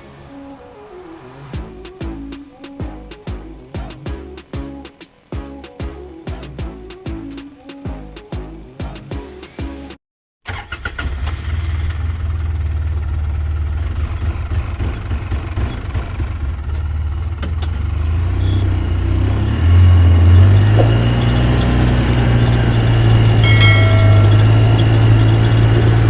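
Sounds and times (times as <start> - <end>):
tractor engine rumbling: 14.0 - 26.0.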